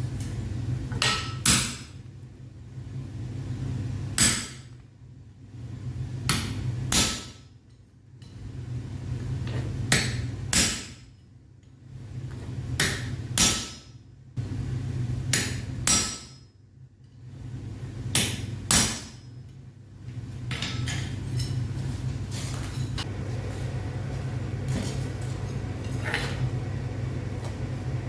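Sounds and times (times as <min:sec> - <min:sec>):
steady low hum: 0:00.0 - 0:28.0
hammer striking metal on anvil: 0:09.9 - 0:11.1, 0:15.3 - 0:16.5, 0:18.2 - 0:19.3.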